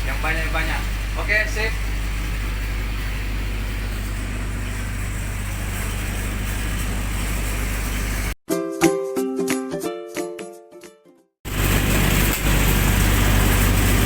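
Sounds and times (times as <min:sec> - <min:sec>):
generator engine humming: 0:00.0 - 0:08.4, 0:11.5 - 0:14.0
plucked ukulele-like music: 0:08.5 - 0:11.3.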